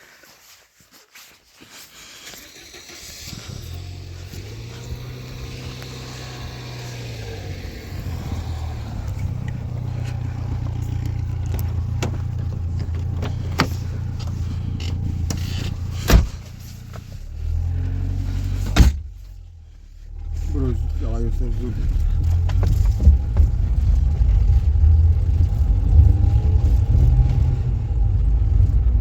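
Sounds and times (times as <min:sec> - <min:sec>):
vehicle engine running: 0:02.2 - 0:29.0
knocks and rattles: 0:08.7 - 0:17.1
loud thump: 0:16.0 - 0:16.5, 0:18.6 - 0:19.1.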